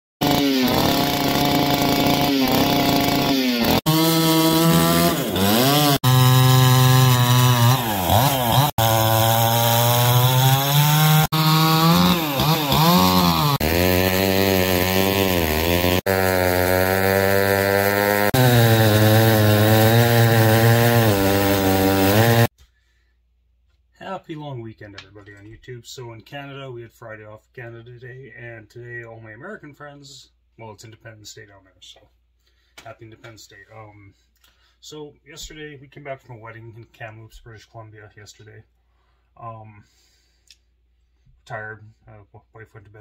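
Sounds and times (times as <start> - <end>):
chainsaw running hard: 0.2 - 22.5.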